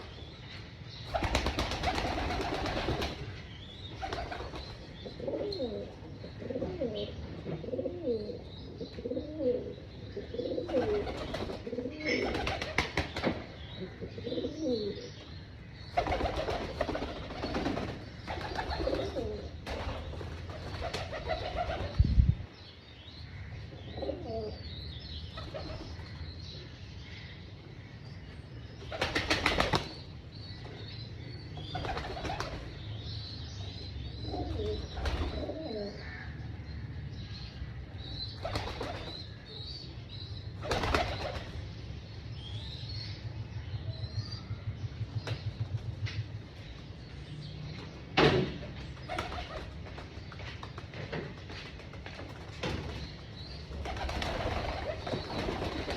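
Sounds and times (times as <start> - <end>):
wings flapping: 1.1 - 3.3, 12.2 - 13.4, 16.0 - 22.0, 29.0 - 29.9, 40.7 - 41.5, 53.8 - 55.9
pigeons cooing: 4.0 - 13.1, 13.8 - 15.1, 16.0 - 22.0, 23.9 - 24.6, 34.2 - 36.2.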